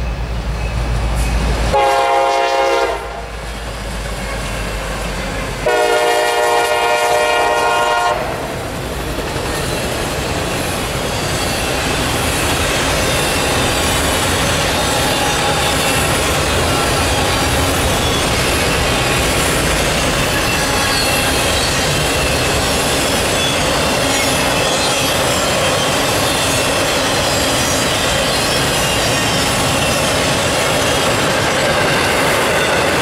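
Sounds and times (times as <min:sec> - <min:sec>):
locomotive horn blasts: 0:01.7 - 0:03.3, 0:05.4 - 0:08.5
clatter of wheels on rails: 0:08.6 - 0:33.0.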